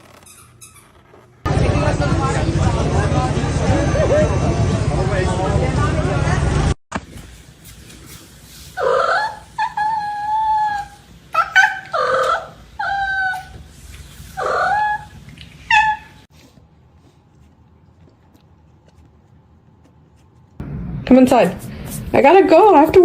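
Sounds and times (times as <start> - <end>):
pet whining: 8.8 - 19.4.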